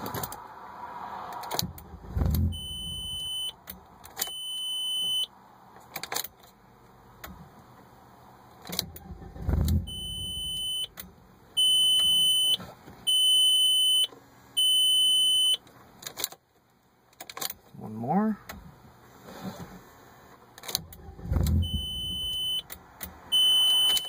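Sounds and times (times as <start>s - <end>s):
car engine cranking and dying: 1.3s - 4.2s, 8.6s - 12.7s, 20.4s - 24.0s
electronic warning chime beeps: 2.6s - 3.6s, 9.9s - 10.9s, 11.6s - 15.6s, 21.6s - 22.6s, 23.4s - 24.0s.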